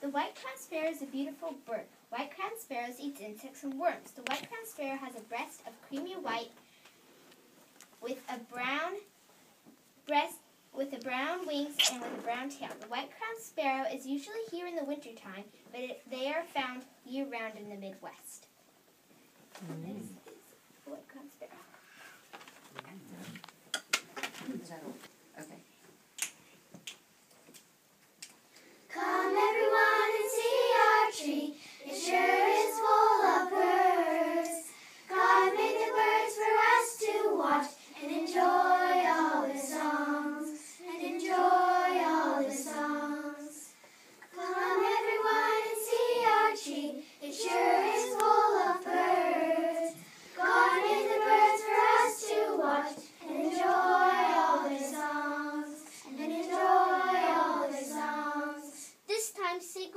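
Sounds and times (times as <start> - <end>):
children singing: 28.9 - 43.6, 44.3 - 58.8.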